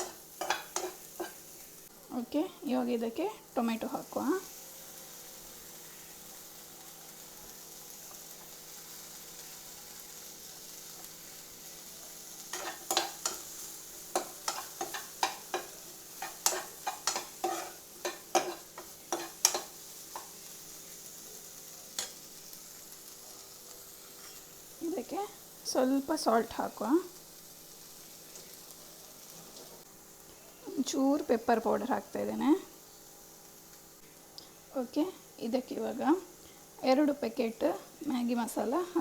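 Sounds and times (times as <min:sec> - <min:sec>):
utensil scraping and clicking on pan: 0:00.0 - 0:01.4, 0:12.5 - 0:20.3
vegetables sizzling in a pan: 0:00.0 - 0:39.0.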